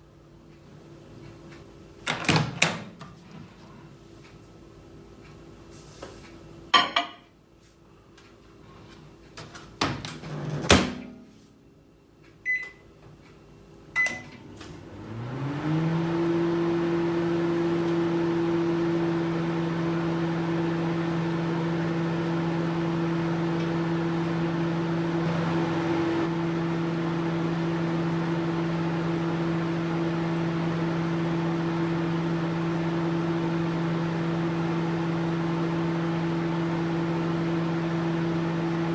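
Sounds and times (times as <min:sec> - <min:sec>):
microwave oven humming: 0:07.9 - 0:38.9
keypad beeps: 0:12.4 - 0:12.8, 0:14.0 - 0:14.3.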